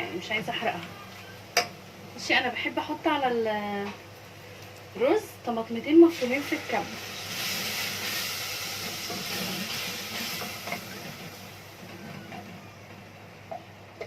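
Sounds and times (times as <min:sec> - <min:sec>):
tomatoes sizzling in hot oil: 0:01.4 - 0:12.1.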